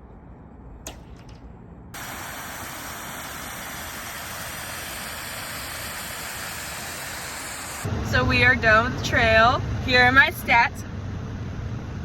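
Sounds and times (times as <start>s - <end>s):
steady rushing hiss: 2.0s - 8.3s.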